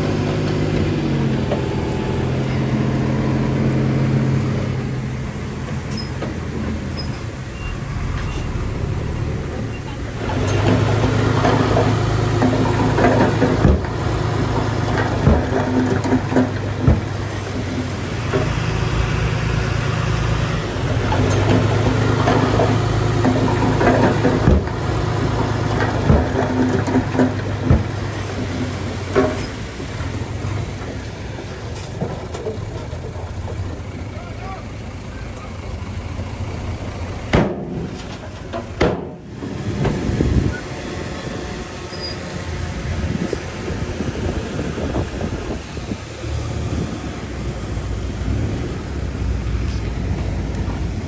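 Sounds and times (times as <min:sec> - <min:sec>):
heavy diesel engine running: 0:00.0 - 0:51.0
sharp knocks: 0:10.3 - 0:17.5, 0:21.1 - 0:28.3, 0:37.3 - 0:40.0.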